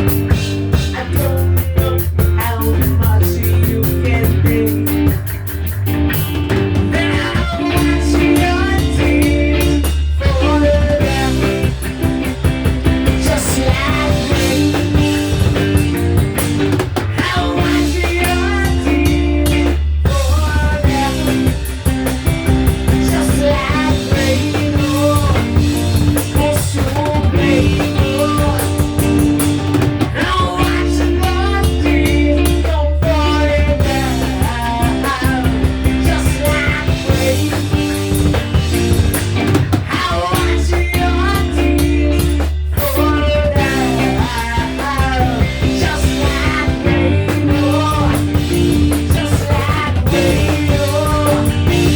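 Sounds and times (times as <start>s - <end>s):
rock music with drums and guitar: 0.0s - 51.9s
person singing: 0.7s - 5.2s, 6.8s - 12.0s, 13.0s - 15.6s, 17.0s - 21.9s, 22.7s - 29.4s, 30.1s - 38.1s, 39.5s - 51.9s.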